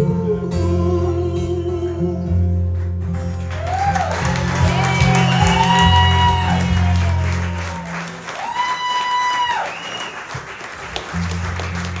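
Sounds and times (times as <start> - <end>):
low bass: 0.0 - 8.0
closing song music: 0.0 - 8.2
audience applauding: 2.8 - 12.0.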